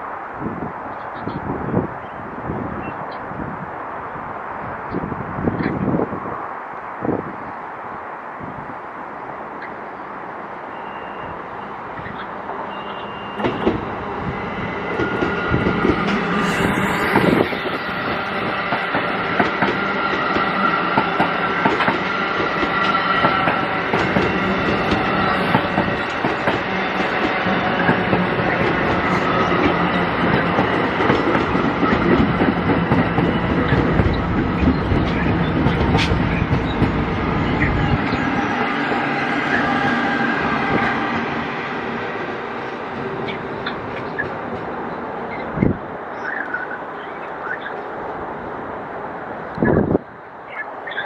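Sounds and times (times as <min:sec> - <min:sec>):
train low rumble: 0:11.7 - 0:46.7
train wheels clicking over rails: 0:14.9 - 0:37.3.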